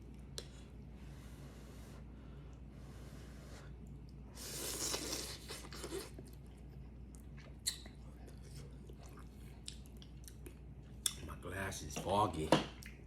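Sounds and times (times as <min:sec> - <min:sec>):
person slurping noodle soup: 0:04.4 - 0:06.2.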